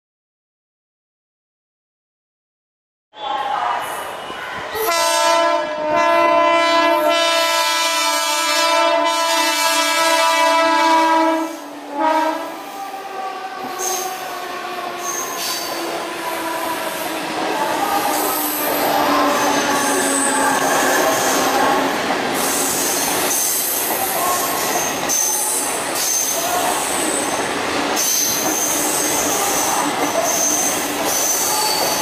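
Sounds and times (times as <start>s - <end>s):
train rumbling along platform: 3.2s - 32.0s
train horn blast: 4.8s - 12.7s
high wheel squeals: 13.6s - 32.0s.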